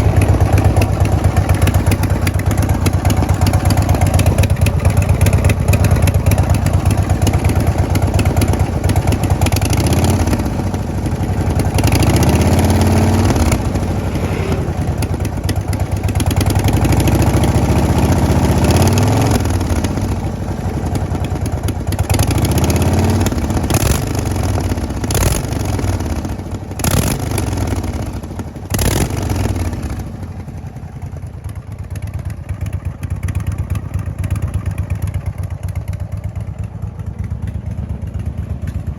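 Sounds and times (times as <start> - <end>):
exhaust cracks: 0.0 - 17.9
motorcycle engine revving: 0.0 - 38.9.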